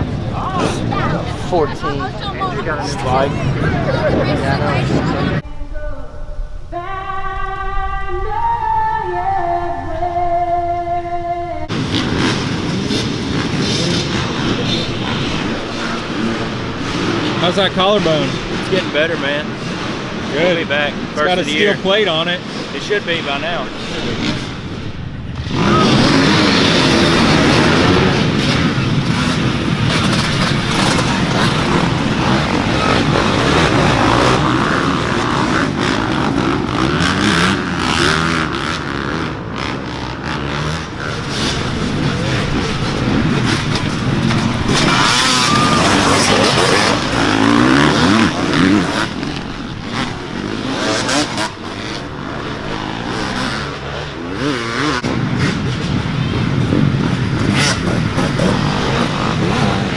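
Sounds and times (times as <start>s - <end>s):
dirt bike engines revving: 0.0s - 5.4s, 11.7s - 59.9s.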